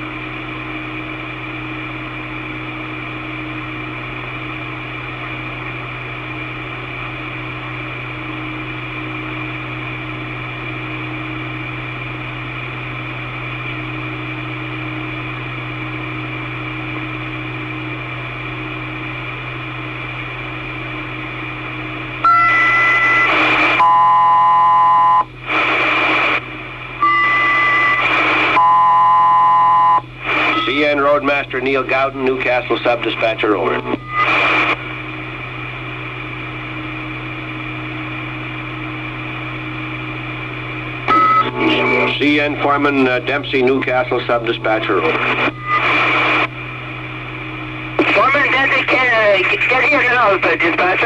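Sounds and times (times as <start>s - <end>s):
radio hiss and hum: 0.0s - 51.0s
radio tone bursts: 22.2s - 26.4s, 27.0s - 34.9s, 41.1s - 46.5s, 47.9s - 51.0s.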